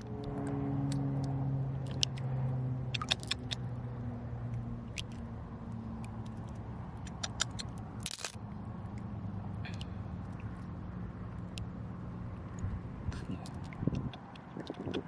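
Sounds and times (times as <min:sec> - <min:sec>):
low hum: 0:00.0 - 0:15.0
small stones clicking and scraping: 0:08.0 - 0:08.4.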